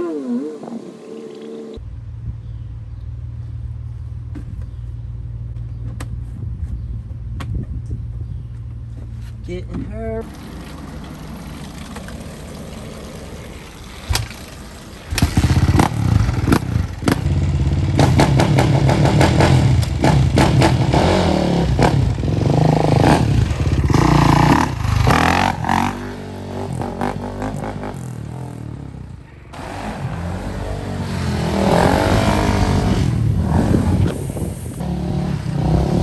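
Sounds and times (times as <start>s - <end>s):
dirt bike engine revving: 0.0s - 1.8s, 10.2s - 36.0s.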